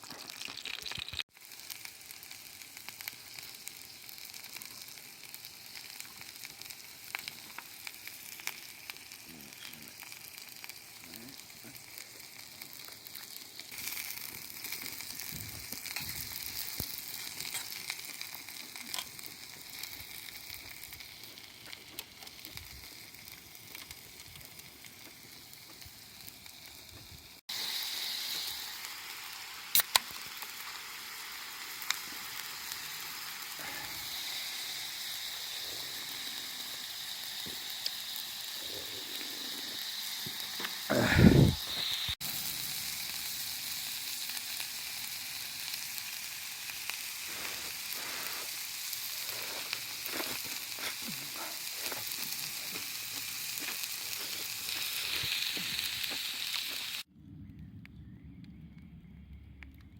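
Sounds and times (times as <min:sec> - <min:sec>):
meat sizzling over campfire: 0:00.0 - 0:57.1
fire crackles and pops: 0:00.0 - 0:59.9.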